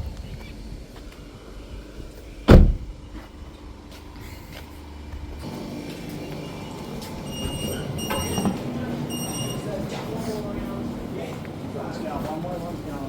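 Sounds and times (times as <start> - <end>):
car door slamming: 2.5 - 3.0.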